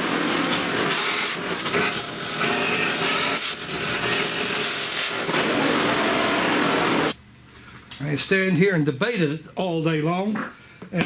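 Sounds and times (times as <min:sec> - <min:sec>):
power tool grinding steel: 0:00.0 - 0:07.2.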